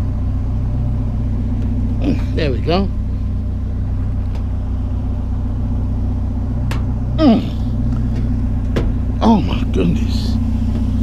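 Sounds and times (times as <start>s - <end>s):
vehicle engine idling: 0.0s - 11.0s
grunt of effort: 7.2s - 7.8s.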